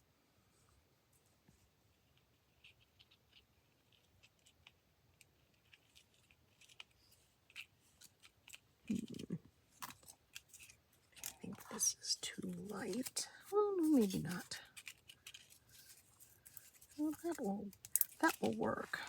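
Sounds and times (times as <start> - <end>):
paper handling sounds: 2.1 - 19.0
scissors snipping paper: 2.5 - 9.2, 9.8 - 19.0.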